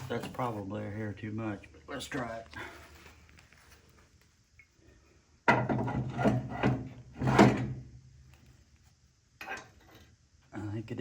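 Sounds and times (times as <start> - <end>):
metal parts clunking and scraping: 5.4 - 7.9.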